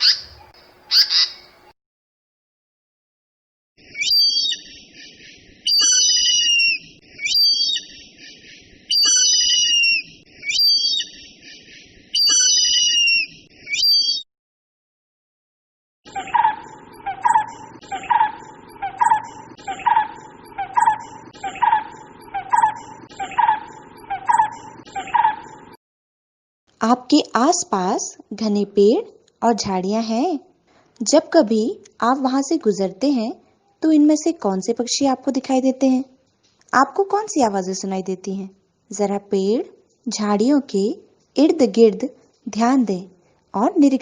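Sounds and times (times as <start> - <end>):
low falling bird calls: 0.0 - 1.7
sharp high bird calls: 0.0 - 1.7, 3.8 - 14.2, 16.1 - 25.8.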